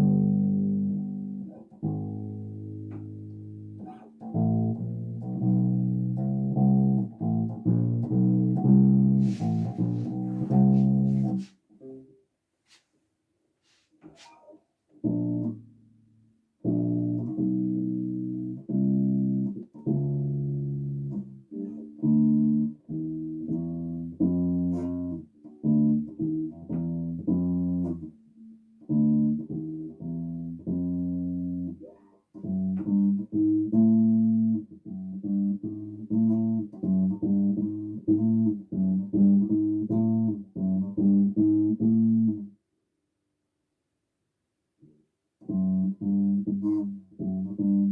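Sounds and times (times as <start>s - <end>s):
bass guitar plucked notes: 0.0s - 11.4s.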